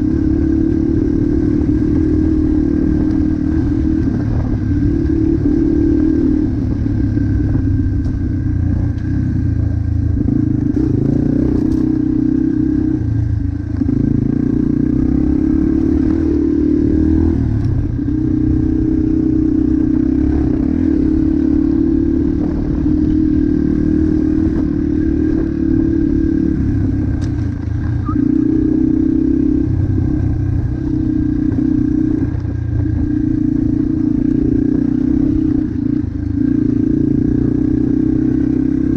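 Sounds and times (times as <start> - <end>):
motocross motorcycle engine revving: 10.1 - 27.2.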